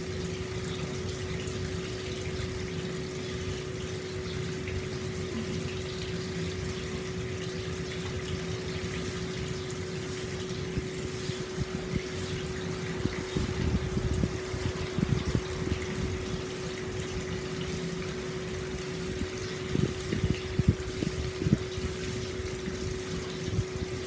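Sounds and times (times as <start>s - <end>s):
water pouring into a bath: 0.0s - 24.0s
steady low hum: 5.3s - 24.0s.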